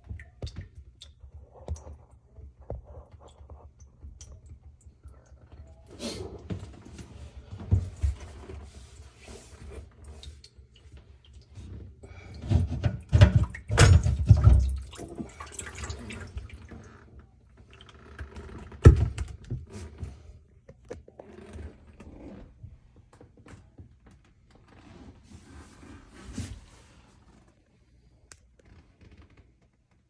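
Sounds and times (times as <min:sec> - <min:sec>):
dripping water: 0:00.0 - 0:02.0, 0:13.4 - 0:16.9.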